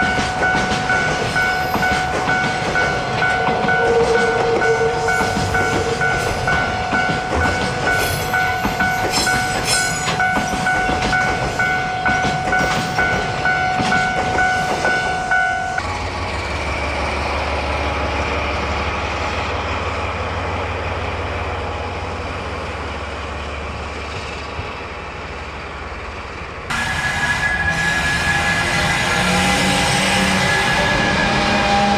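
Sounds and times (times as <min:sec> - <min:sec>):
level crossing warning bell: 0:00.0 - 0:16.1
low train rumble: 0:00.0 - 0:31.9
train wagons clattering over rails: 0:00.0 - 0:31.9.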